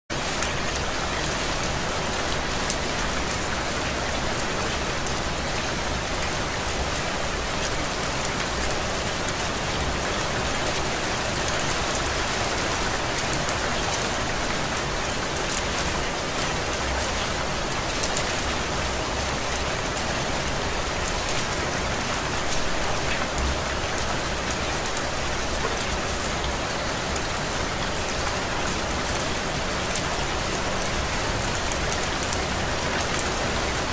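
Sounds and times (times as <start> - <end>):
steady rain hissing: 0.1 - 33.9
raindrops pattering on a surface: 0.2 - 33.9.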